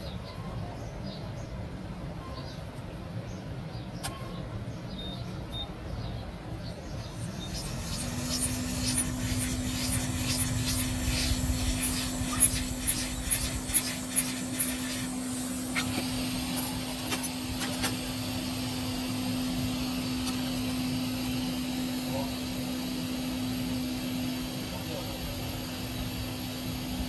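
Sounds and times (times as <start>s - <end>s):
electric motor humming: 7.0s - 27.0s.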